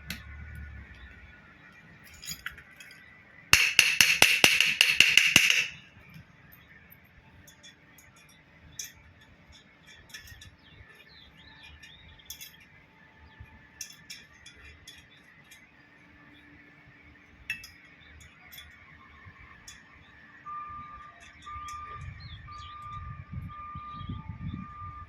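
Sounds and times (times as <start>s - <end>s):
metal parts clinking: 2.1s - 3.0s, 3.6s - 5.8s, 7.5s - 11.0s, 11.6s - 12.7s, 13.8s - 15.6s, 17.5s - 18.8s.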